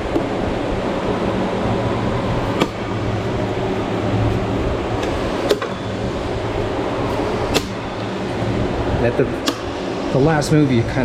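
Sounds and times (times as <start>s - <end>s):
electric fan humming: 0.0s - 11.0s
sharp clicks of prying plastic: 9.4s - 9.7s.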